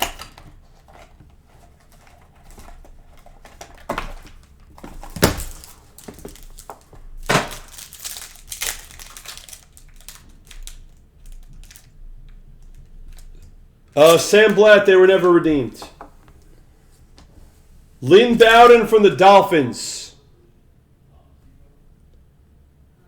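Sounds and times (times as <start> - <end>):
plastic wrapping crinkling and tearing: 0.0 - 12.0.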